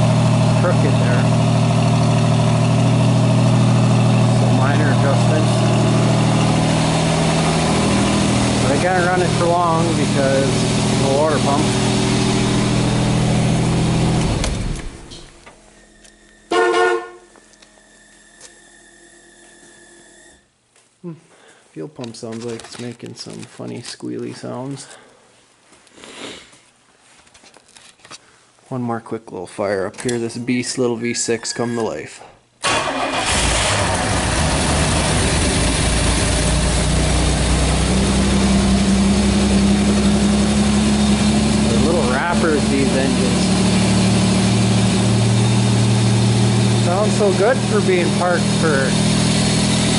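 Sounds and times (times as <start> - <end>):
steady low drone: 0.0 - 15.3
car engine idling: 0.0 - 15.7, 32.6 - 49.9
faint high squeal: 15.7 - 20.4
car horn toot: 16.5 - 17.4.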